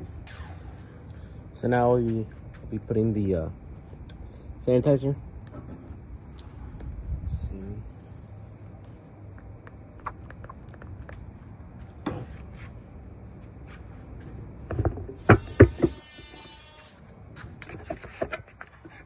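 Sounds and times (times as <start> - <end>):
hiss: 0.2 - 1.0.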